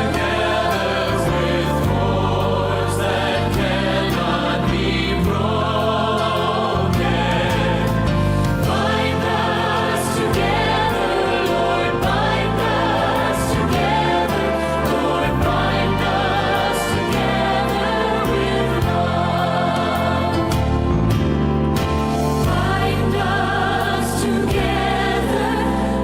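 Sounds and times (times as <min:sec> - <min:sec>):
choir singing: 0:00.0 - 0:26.0
sustained low instrumental chords: 0:00.0 - 0:26.0.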